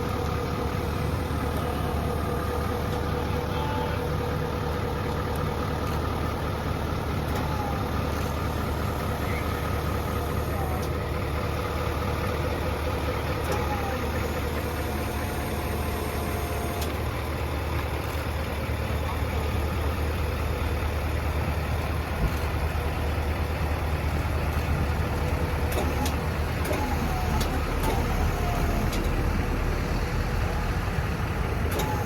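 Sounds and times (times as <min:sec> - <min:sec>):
truck engine idling low: 0:00.0 - 0:32.0.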